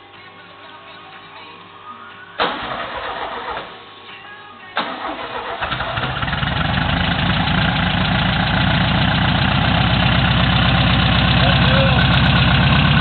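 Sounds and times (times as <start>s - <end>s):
van engine starting and idling: 2.4s - 3.8s, 4.8s - 13.0s.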